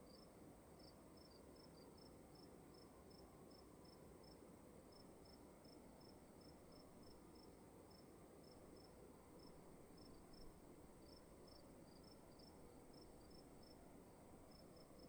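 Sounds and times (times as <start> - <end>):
low room hiss: 0.0 - 15.0
crickets chirping: 0.1 - 15.0.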